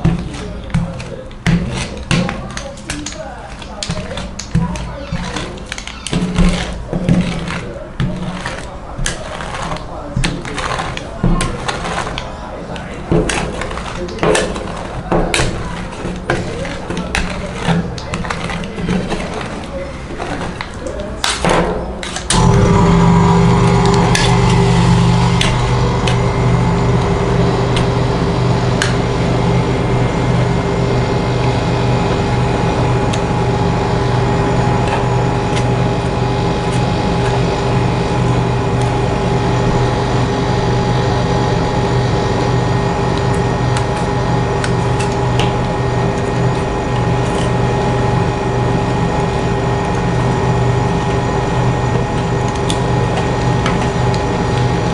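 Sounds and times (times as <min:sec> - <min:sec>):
motor humming: 0:22.3 - 0:54.9.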